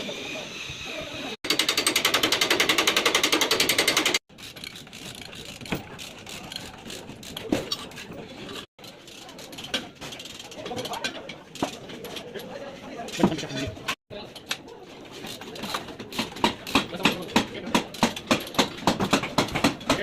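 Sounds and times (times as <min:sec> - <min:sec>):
power tool hammering: 0:01.4 - 0:04.2, 0:16.1 - 0:20.0.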